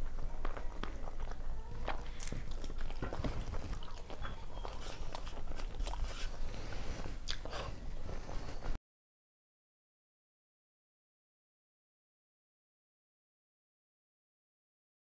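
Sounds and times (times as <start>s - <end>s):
chewing with lip smacks: 0.2s - 7.8s.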